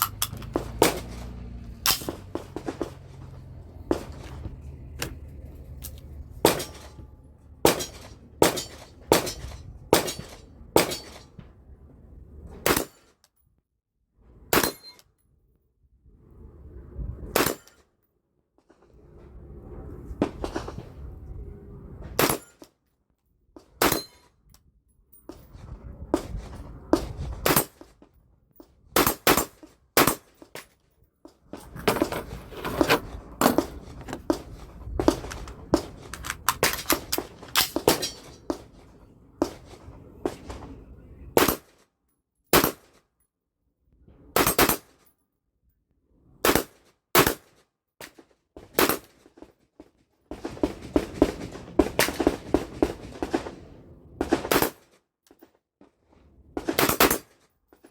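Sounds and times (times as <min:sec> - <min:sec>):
rumbling handling noise: 0:00.0 - 0:12.7, 0:30.4 - 0:41.4.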